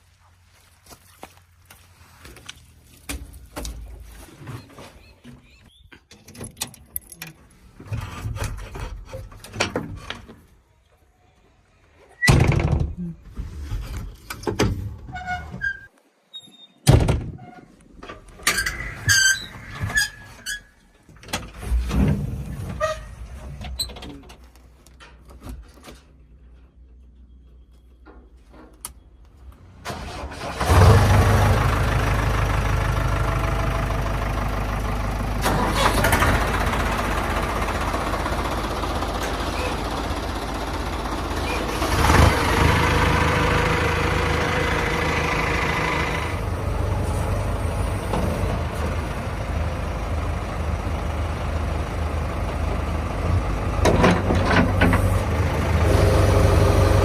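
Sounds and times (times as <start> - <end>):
tractor engine running: 28.0 - 57.0.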